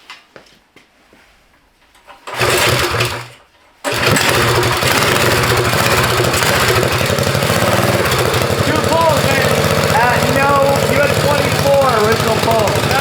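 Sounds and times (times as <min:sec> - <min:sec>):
engine pull-start: 0:02.1 - 0:13.0
small engine running: 0:02.3 - 0:13.0.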